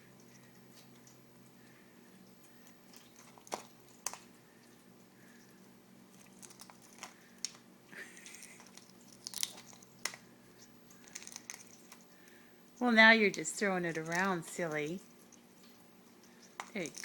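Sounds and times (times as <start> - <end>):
parrot beak pecking eggshell: 2.4 - 4.8, 6.1 - 12.4.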